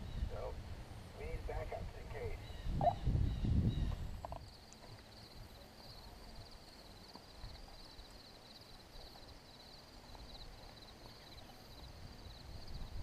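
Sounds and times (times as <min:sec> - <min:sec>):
insects trilling: 0:04.0 - 0:13.0.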